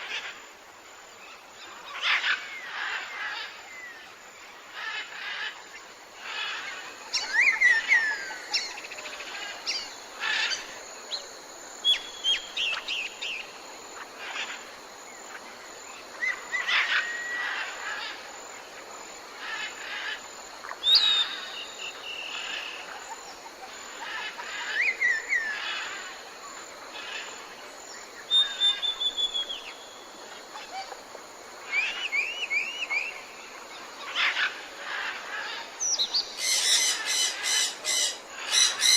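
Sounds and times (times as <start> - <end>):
steady outdoor hiss: 0.0 - 38.9
birds chirping and calling: 34.1 - 38.9.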